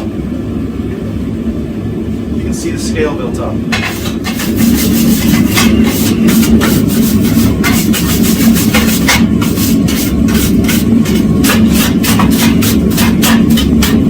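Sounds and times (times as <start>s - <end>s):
gas forge roaring: 0.0s - 14.0s
wire brush scrubbing hot steel: 3.7s - 14.0s.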